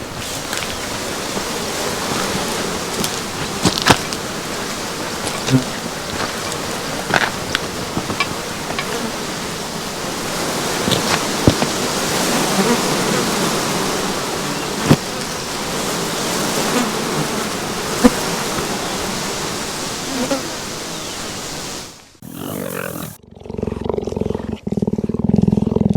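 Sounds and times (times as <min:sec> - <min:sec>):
swarm of flies buzzing: 0:00.0 - 0:23.2.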